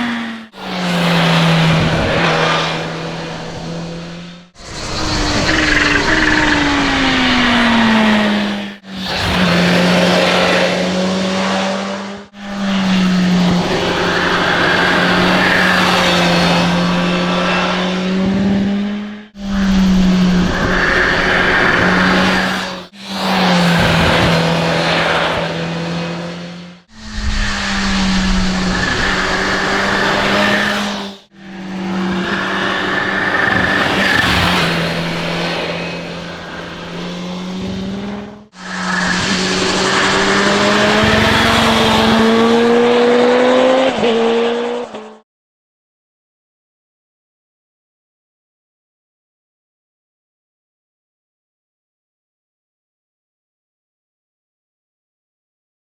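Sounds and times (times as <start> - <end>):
motorcycle engine running: 12.6 - 15.2.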